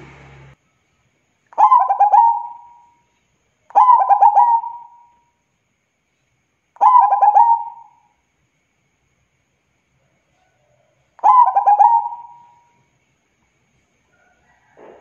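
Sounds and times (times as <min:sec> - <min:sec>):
dove cooing: 0:01.6 - 0:02.9, 0:03.7 - 0:05.1, 0:06.8 - 0:08.0, 0:11.2 - 0:12.6.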